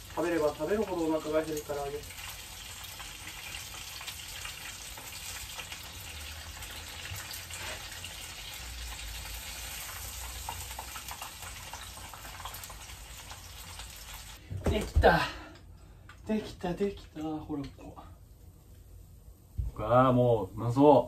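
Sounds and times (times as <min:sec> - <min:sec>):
chicken frying in oil: 0:00.0 - 0:14.4.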